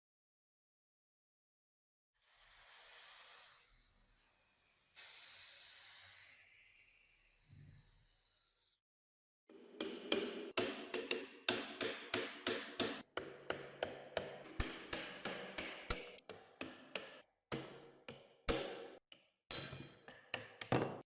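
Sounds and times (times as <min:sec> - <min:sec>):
hammer tapping on metal: 0:09.6 - 0:21.0.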